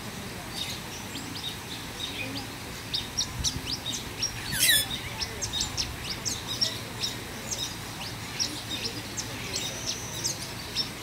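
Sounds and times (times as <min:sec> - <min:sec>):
birds chirping: 0:00.6 - 0:11.0
harsh bird call: 0:04.4 - 0:05.1.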